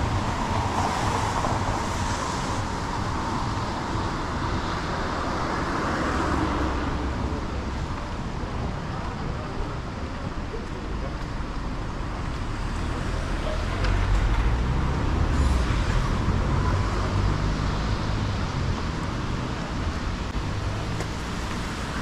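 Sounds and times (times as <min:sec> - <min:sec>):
street noise hiss: 0:00.0 - 0:22.0.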